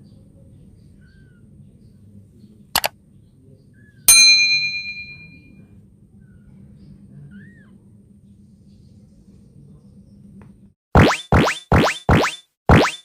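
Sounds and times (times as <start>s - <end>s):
bright metallic ding: 4.1s - 5.5s.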